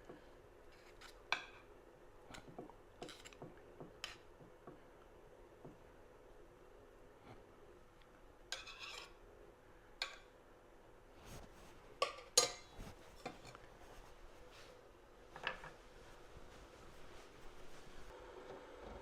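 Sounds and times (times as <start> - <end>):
dishes and utensils clinking: 12.0 - 13.6.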